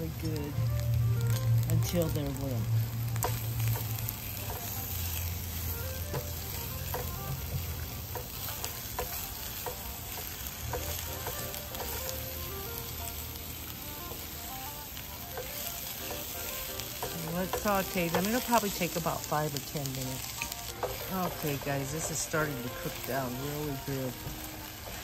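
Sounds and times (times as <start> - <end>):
vegetables sizzling in oil: 0.0 - 25.0.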